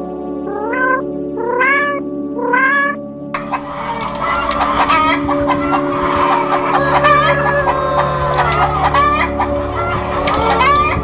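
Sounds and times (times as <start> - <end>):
cat meowing: 6.8 - 8.6
chickens clucking: 6.8 - 8.6.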